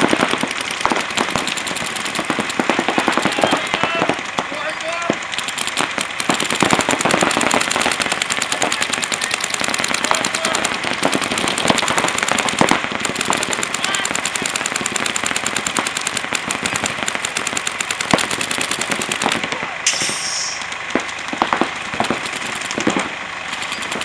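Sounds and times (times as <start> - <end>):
paintball markers firing rapidly: 0.0 - 24.0.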